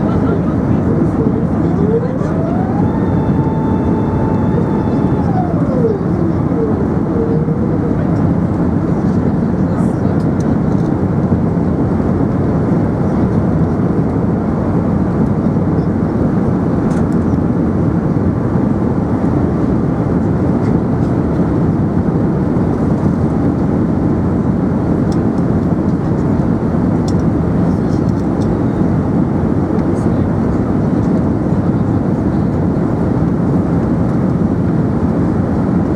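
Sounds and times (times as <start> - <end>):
aircraft cabin engine and airflow rush: 0.0 - 35.9.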